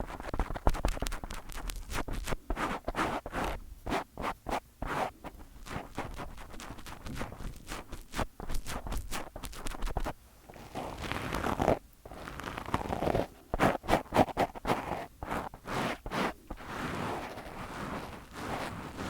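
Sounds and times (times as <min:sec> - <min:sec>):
fingers tapping microphone: 0:00.0 - 0:04.6, 0:05.2 - 0:10.2
fingers rubbing microphone: 0:00.0 - 0:19.0.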